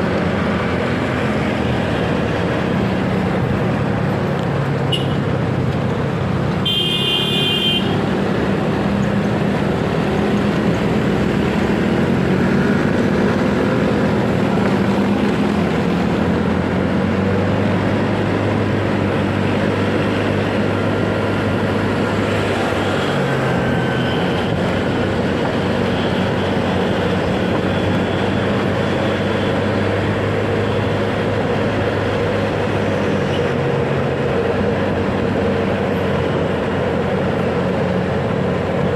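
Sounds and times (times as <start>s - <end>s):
road and wind noise: 0.0s - 38.9s
horn beep: 6.7s - 8.0s.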